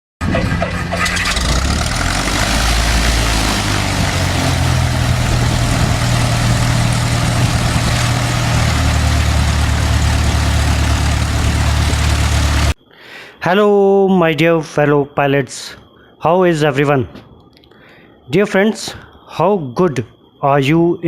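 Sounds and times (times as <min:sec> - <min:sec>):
engine droning hum: 0:00.2 - 0:12.8
heavy rushing noise: 0:00.2 - 0:12.8.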